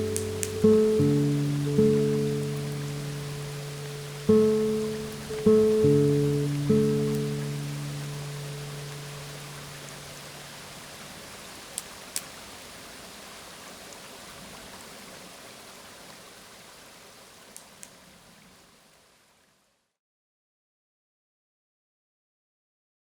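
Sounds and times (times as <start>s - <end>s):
acoustic guitar note: 0.0s - 9.8s
river water babbling: 0.0s - 19.6s.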